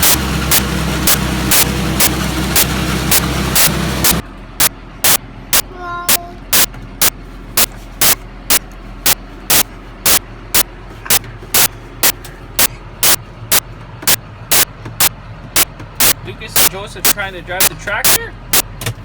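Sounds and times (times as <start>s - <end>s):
loud sharp clicks: 0.0s - 5.2s, 6.5s - 10.2s, 11.1s - 19.0s
low machine hum: 0.0s - 19.0s.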